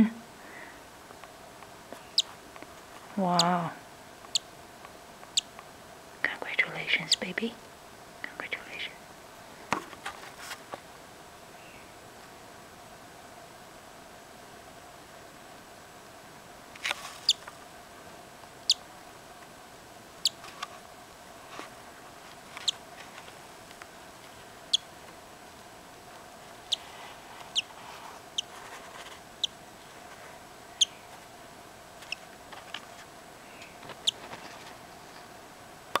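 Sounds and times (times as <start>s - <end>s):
bird chick peeping: 2.0s - 2.4s, 3.2s - 3.7s, 4.3s - 4.5s, 5.3s - 5.5s, 17.2s - 17.5s, 18.6s - 18.8s, 20.2s - 20.5s, 24.7s - 24.9s, 26.6s - 26.9s, 27.5s - 28.7s, 30.7s - 31.1s, 32.0s - 32.2s, 33.5s - 34.2s.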